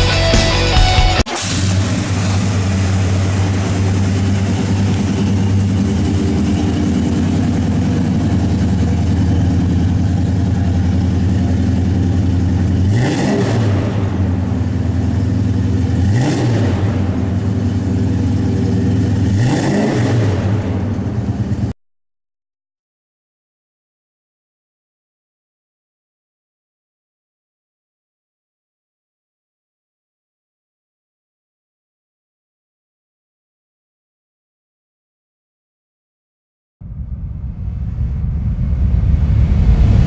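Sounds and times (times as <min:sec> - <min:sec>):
car engine idling: 0:00.0 - 0:19.6, 0:20.3 - 0:21.7, 0:36.8 - 0:40.0
car engine revving: 0:00.0 - 0:21.7.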